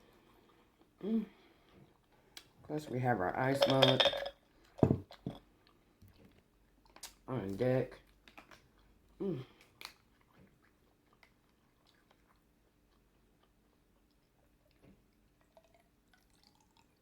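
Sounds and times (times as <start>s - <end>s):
person chewing: 8.0s - 17.0s.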